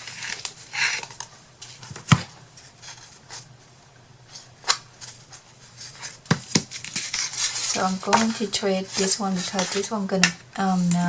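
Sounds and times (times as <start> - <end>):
paper rustling: 4.3 - 11.0.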